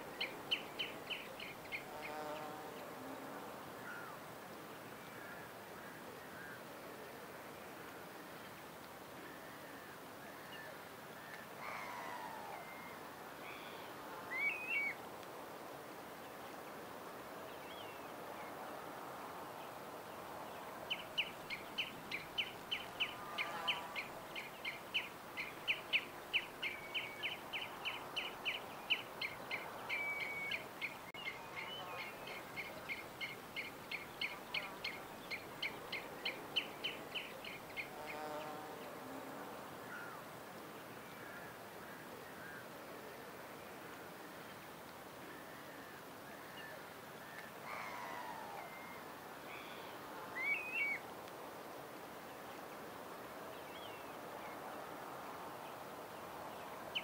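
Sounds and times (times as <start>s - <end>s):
faint outdoor background: 0.0s - 57.0s
bird chirping: 20.9s - 38.6s.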